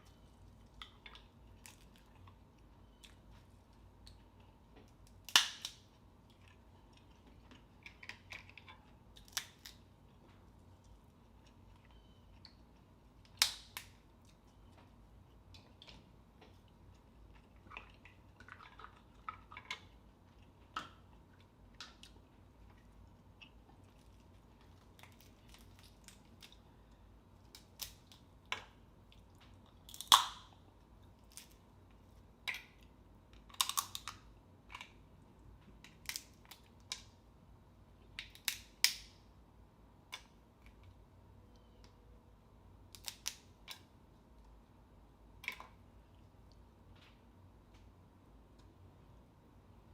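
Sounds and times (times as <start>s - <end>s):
chewing: 15.6s - 26.6s.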